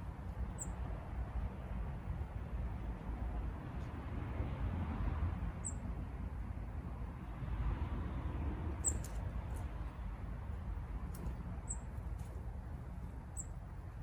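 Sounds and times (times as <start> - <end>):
small bird chipping: 0.5 - 0.8, 8.8 - 9.2, 11.2 - 12.2, 13.3 - 13.6.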